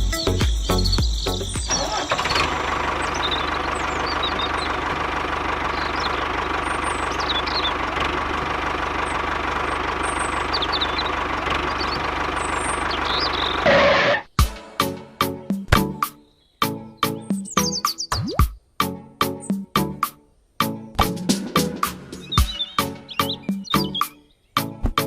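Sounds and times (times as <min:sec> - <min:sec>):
birds chirping: 0:00.0 - 0:14.5, 0:15.2 - 0:25.0
small engine idling: 0:01.3 - 0:14.2.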